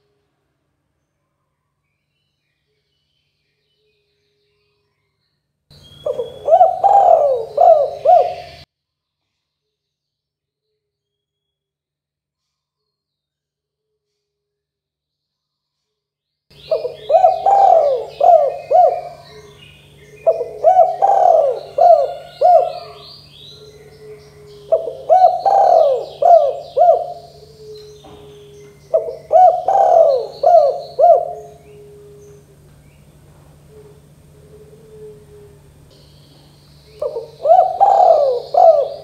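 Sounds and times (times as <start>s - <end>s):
steady low hum: 5.7s - 8.7s, 16.5s - 39.0s
dove cooing: 6.0s - 8.6s, 16.6s - 36.0s, 36.9s - 39.0s
faint high chirping: 16.5s - 39.0s.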